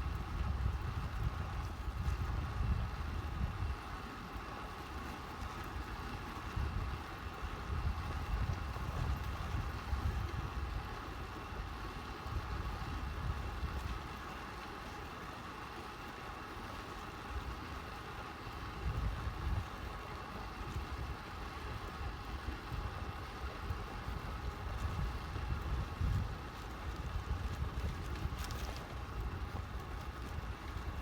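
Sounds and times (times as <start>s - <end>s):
bike tyres rolling on tarmac: 0.0s - 31.0s
wind buffeting microphone: 6.5s - 14.1s, 20.7s - 31.0s.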